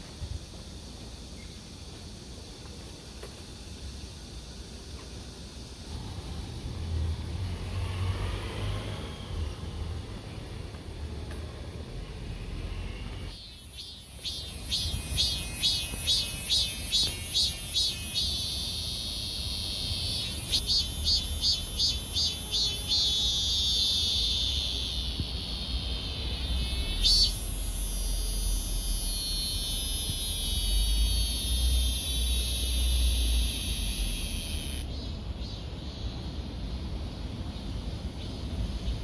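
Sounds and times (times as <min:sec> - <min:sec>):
steady high insect buzz: 0:00.0 - 0:39.0
insects singing in pulses: 0:12.0 - 0:39.0.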